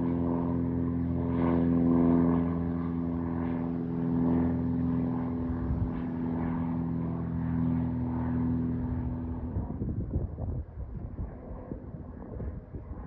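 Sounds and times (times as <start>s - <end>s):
propeller airplane engine: 0.0s - 13.0s
wind buffeting microphone: 5.1s - 6.6s, 8.9s - 13.0s.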